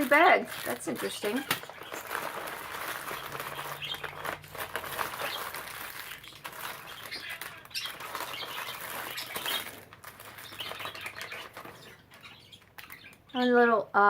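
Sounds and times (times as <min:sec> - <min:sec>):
budgerigars chattering and chirping: 0:01.0 - 0:04.4, 0:05.0 - 0:13.7.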